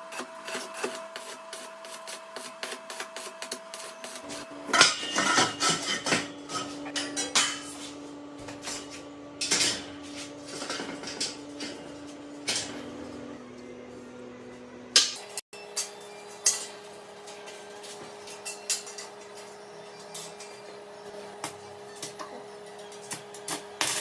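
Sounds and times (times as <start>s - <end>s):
steady hum: 0.0s - 15.4s.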